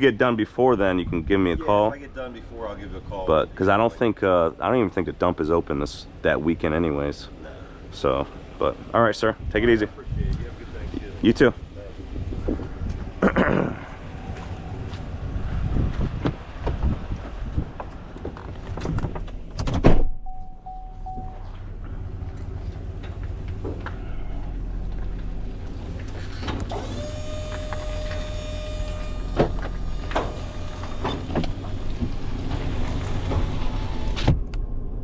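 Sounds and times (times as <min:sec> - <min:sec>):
engine running low hum: 0:00.0 - 0:35.0
vehicle door shutting: 0:18.2 - 0:21.8, 0:26.0 - 0:34.7
short steady tones: 0:20.2 - 0:21.6, 0:26.8 - 0:31.0.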